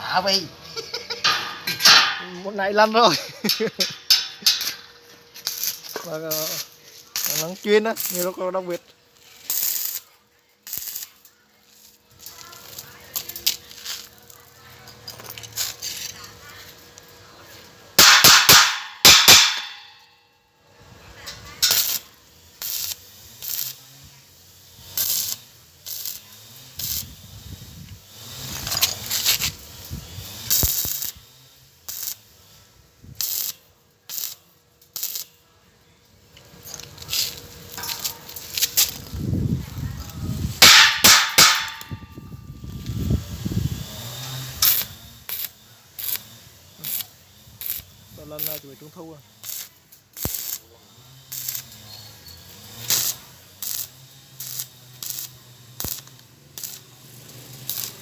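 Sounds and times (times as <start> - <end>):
arc welding crackle: 0.0 - 58.0
metal clanks and knocks: 1.2 - 2.4, 3.4 - 4.9.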